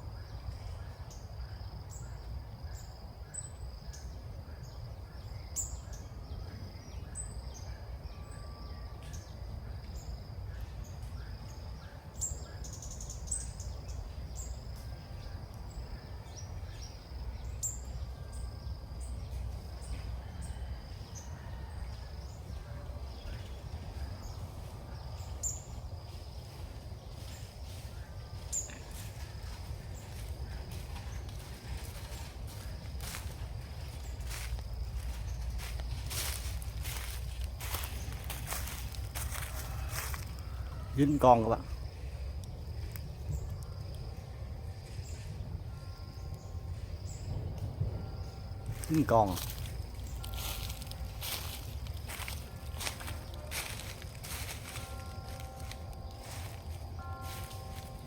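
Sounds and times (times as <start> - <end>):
constant low rumble: 0.0 - 40.9, 41.6 - 58.0
steady high-pitched hum: 41.6 - 58.0.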